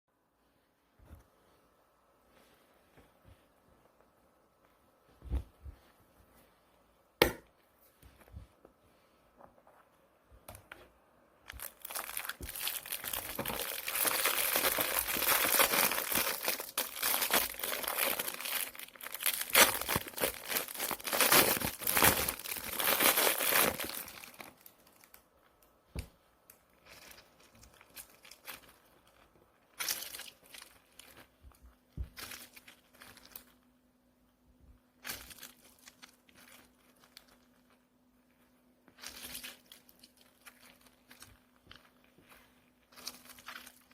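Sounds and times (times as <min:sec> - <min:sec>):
packaging crinkling and tearing: 0:11.5 - 0:25.2, 0:26.5 - 0:33.6, 0:35.0 - 0:37.8, 0:39.0 - 0:43.9.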